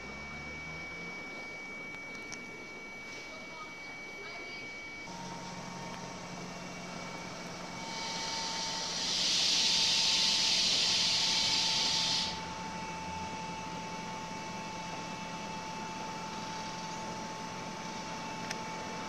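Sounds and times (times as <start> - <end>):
electric train hum: 0.0 - 19.0
steady whine: 0.0 - 19.0
loud hiss: 7.8 - 12.5.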